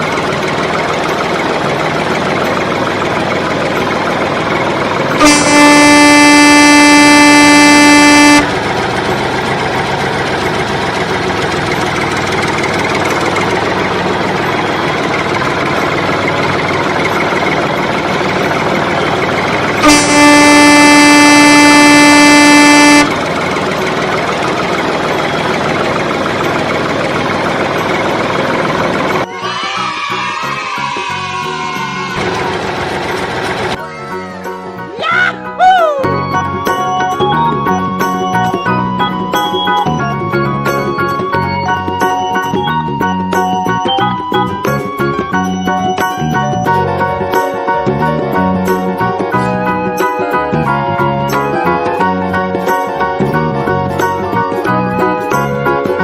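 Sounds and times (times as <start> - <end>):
vehicle horn blasts: 5.1 - 8.8, 19.8 - 23.5.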